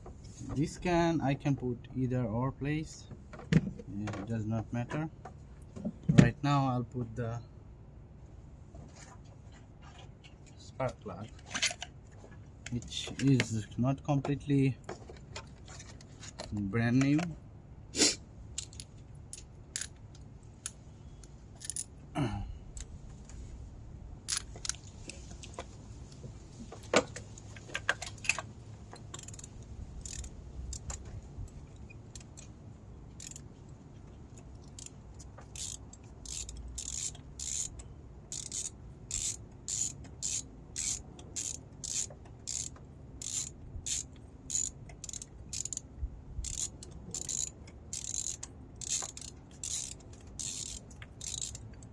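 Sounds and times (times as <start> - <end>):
ratchet wrench clicking: 18.5 - 20.0, 21.6 - 21.9, 24.3 - 24.8, 29.0 - 32.5, 33.2 - 33.5, 34.3 - 51.9
socket clinking against engine: 26.7 - 45.9
metal clicks: 27.0 - 32.6.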